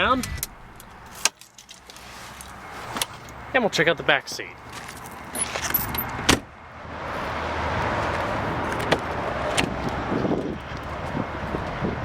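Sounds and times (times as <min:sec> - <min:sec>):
car door shutting: 0:00.0 - 0:01.3.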